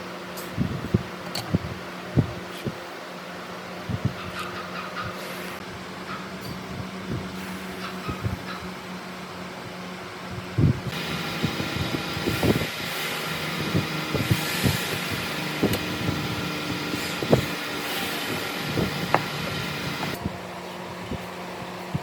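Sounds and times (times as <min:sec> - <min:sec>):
power tool motor running: 0:10.9 - 0:20.2.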